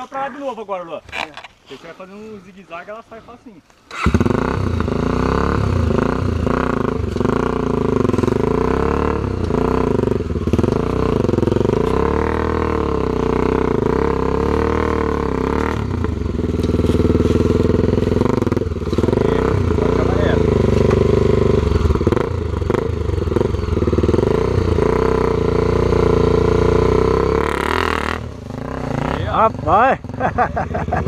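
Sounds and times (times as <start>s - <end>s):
motorcycle engine revving: 3.9s - 31.0s.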